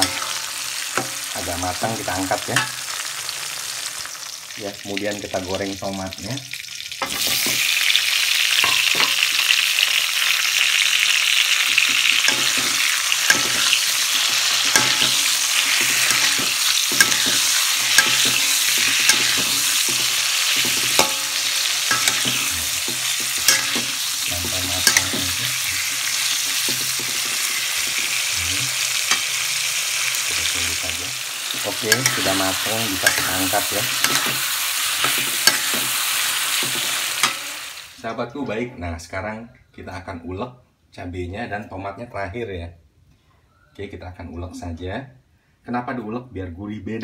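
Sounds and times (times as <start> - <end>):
metal spatula scraping a wok: 0.0 - 1.3, 11.6 - 30.2, 31.4 - 37.6
tomatoes sizzling in hot oil: 0.0 - 38.1.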